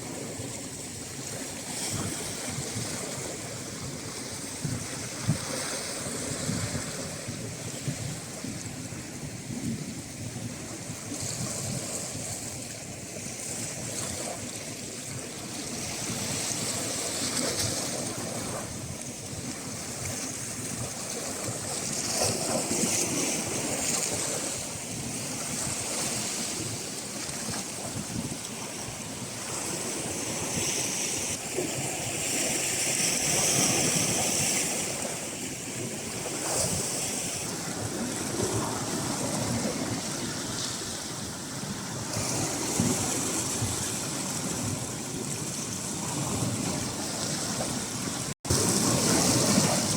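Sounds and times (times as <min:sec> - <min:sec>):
waves washing: 0:00.0 - 0:49.9
wind buffeting microphone: 0:00.0 - 0:49.9.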